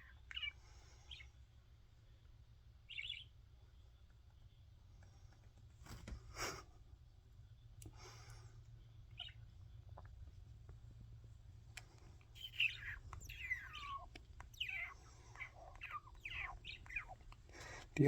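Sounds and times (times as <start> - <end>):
bird chirping: 0.0 - 4.8, 8.6 - 10.1, 12.2 - 18.0
faint low hum: 0.0 - 18.0.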